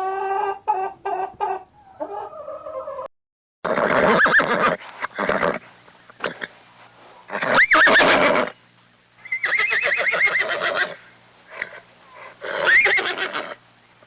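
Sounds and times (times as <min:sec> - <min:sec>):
horse whinnying: 0:03.7 - 0:05.6, 0:07.3 - 0:08.6, 0:09.3 - 0:11.0, 0:12.4 - 0:13.6.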